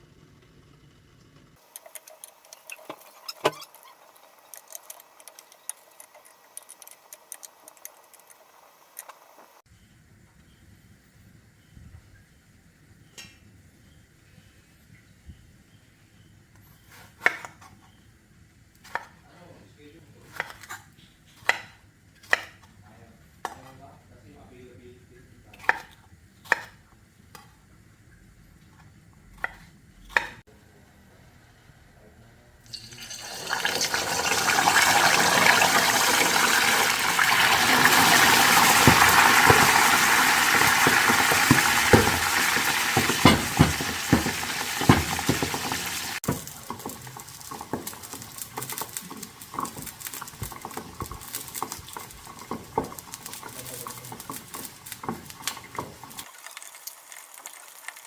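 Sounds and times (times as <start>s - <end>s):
utensils clinking on cookware: 32.7s - 56.2s
food sizzling in hot oil: 32.7s - 58.0s.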